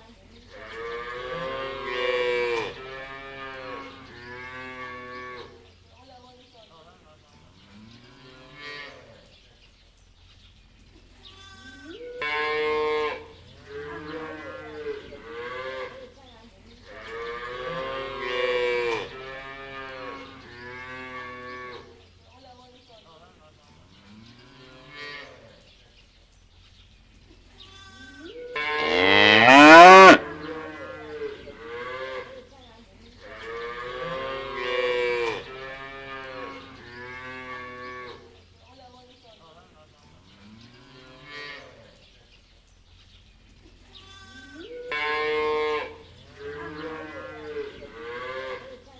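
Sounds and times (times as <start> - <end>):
cattle mooing: 28.5 - 32.3.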